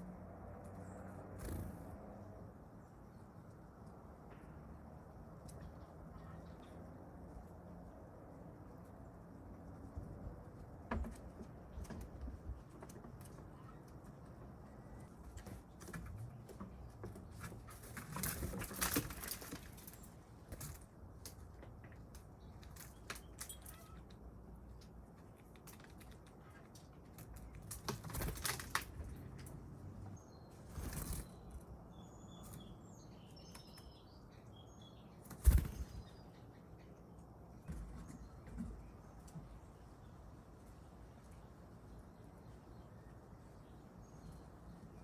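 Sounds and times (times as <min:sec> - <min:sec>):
bird wings flapping: 0:01.4 - 0:01.9, 0:17.7 - 0:20.0, 0:27.5 - 0:29.2, 0:30.6 - 0:31.4, 0:35.3 - 0:36.0
squirrel clicking and scratching: 0:08.5 - 0:30.0.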